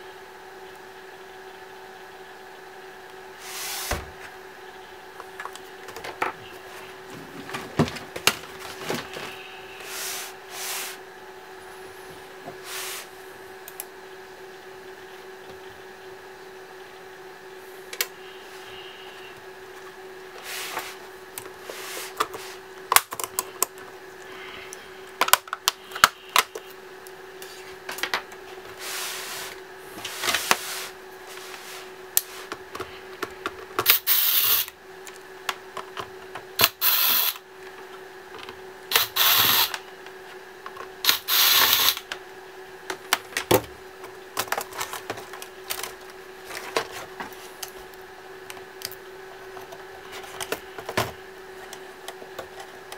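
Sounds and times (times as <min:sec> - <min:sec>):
faint steady hum: 0:00.0 - 0:52.9
electric screwdriver whirring: 0:33.8 - 0:34.7, 0:36.6 - 0:37.4, 0:38.9 - 0:39.8, 0:41.1 - 0:42.0.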